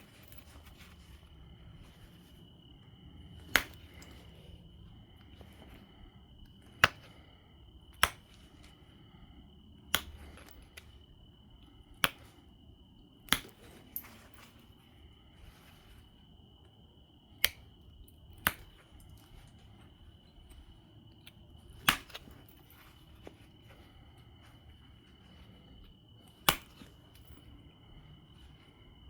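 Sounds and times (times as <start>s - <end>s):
stone flakes snapping off: 3.4s - 4.5s, 6.7s - 7.3s, 8.0s - 9.2s, 9.9s - 10.9s, 12.0s - 12.4s, 13.2s - 13.8s, 18.4s - 19.5s, 21.8s - 22.3s, 26.4s - 26.9s.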